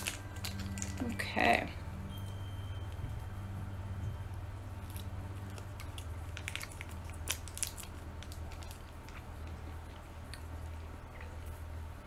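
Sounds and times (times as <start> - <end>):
steady low hum: 0.0 - 12.0
person chewing: 4.8 - 11.6.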